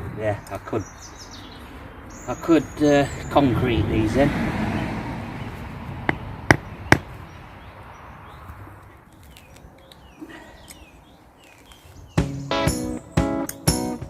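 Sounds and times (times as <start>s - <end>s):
small birds chirping: 0.0s - 14.0s
sharp knocks: 6.0s - 7.1s.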